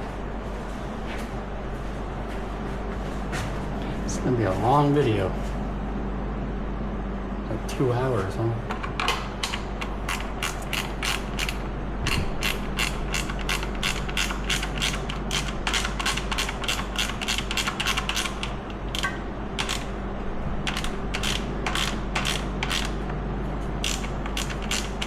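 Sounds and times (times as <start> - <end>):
ratchet wrench clicking: 10.1 - 19.9, 20.7 - 22.9, 23.8 - 25.0.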